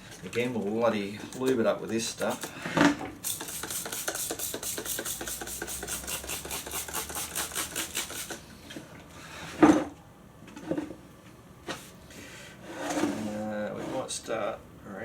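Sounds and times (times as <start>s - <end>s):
spray bottle squirting: 3.2s - 8.4s.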